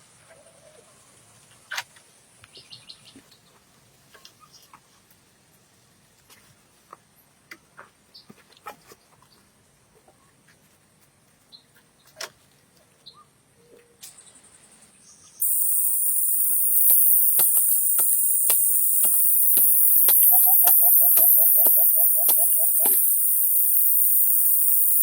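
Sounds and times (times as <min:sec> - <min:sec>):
high-pitched insect chorus: 0:15.4 - 0:25.0
small clicks: 0:15.4 - 0:25.0.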